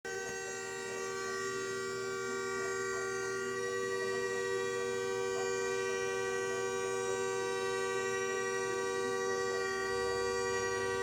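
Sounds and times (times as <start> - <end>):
two-tone horn blare: 8.6 - 11.0.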